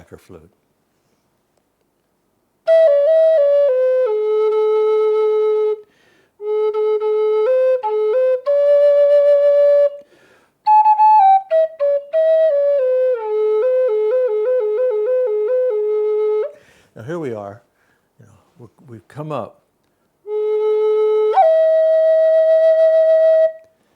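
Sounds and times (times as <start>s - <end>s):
flute playing slow melody: 2.6s - 10.1s, 10.7s - 16.6s, 20.3s - 23.8s.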